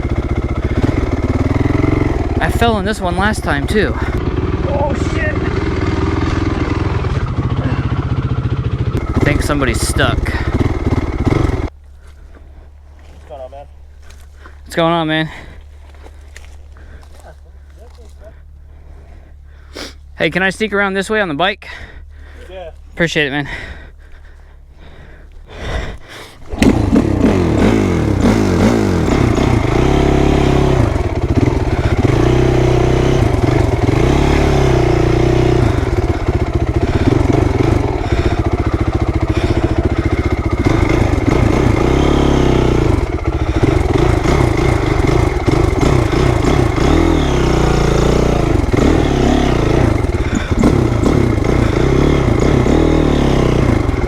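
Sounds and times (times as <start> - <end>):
dirt bike engine revving: 0.0 - 11.8, 26.4 - 54.0.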